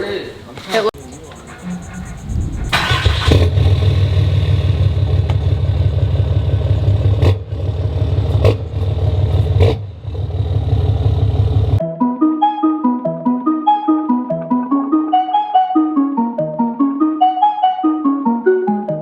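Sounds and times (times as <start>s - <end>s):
truck engine throbbing loudly: 1.0s - 11.8s.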